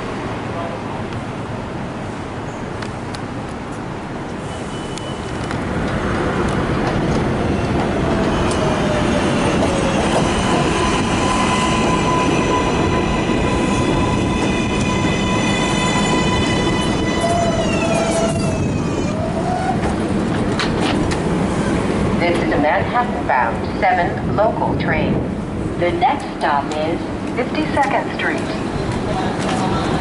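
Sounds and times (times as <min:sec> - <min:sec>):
train wheels clattering on rails: 0:19.6 - 0:21.4.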